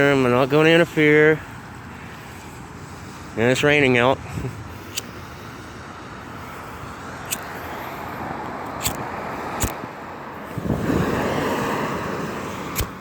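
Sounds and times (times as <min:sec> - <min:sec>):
tyres hissing on wet road: 0:04.5 - 0:13.0
sharp clicks: 0:04.8 - 0:05.2, 0:07.2 - 0:07.5, 0:08.6 - 0:09.8, 0:12.7 - 0:13.0.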